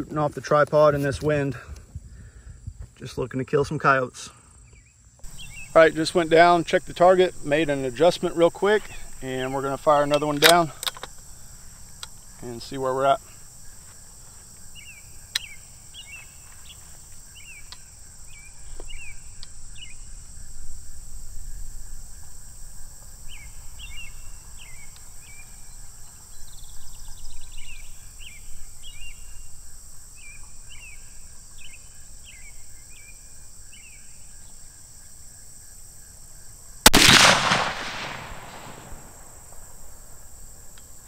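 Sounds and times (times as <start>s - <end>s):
wind rumble on microphone: 1.1s - 3.0s
high insect drone: 1.5s - 41.0s
bird chirping: 4.6s - 20.4s, 23.3s - 34.6s.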